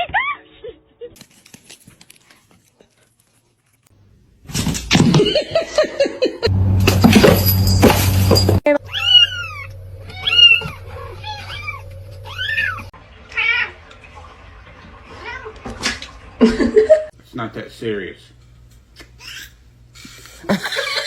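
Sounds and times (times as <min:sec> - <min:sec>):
cat meowing: 0:08.9 - 0:13.7.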